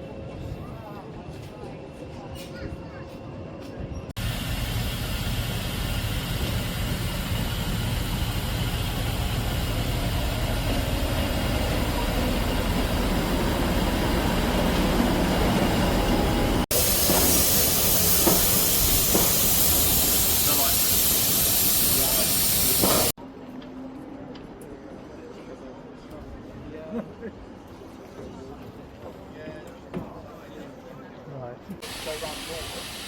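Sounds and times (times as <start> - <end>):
steam train running: 3.4 - 23.2, 31.8 - 33.0
steam hissing: 4.2 - 12.8, 16.7 - 23.2, 31.8 - 33.0.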